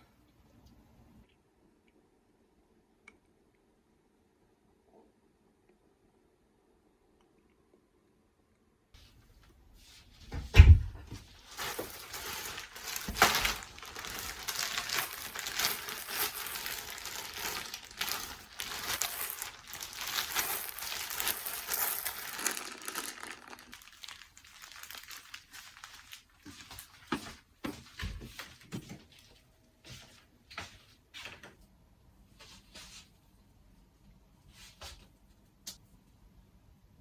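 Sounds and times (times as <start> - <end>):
crinkling and rustling: 9.0 - 31.6
thump: 10.3 - 11.2.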